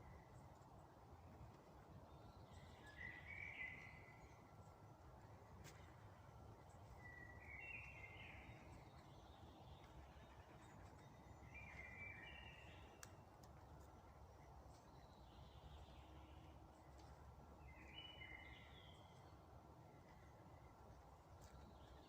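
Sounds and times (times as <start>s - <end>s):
songbird singing: 0.0s - 22.0s
faint ticks: 12.8s - 15.0s.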